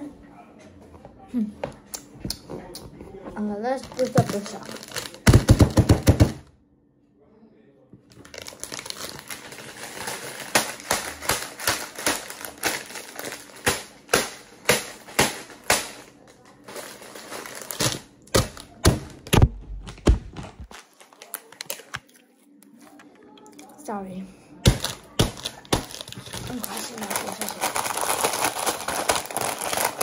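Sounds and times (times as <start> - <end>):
crackly background: 2.1 - 5.3
crunching of crisp fried food: 3.9 - 5.4, 8.1 - 14.0, 24.8 - 30.0.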